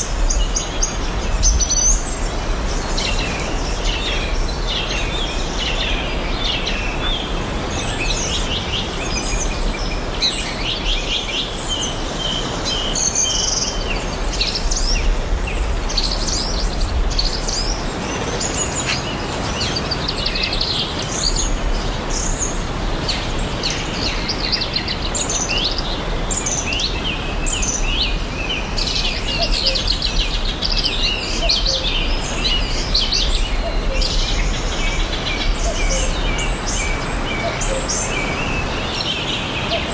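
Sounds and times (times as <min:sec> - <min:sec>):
background rush of noise: 0:00.0 - 0:39.9
songbirds chirping and trilling: 0:00.0 - 0:39.9.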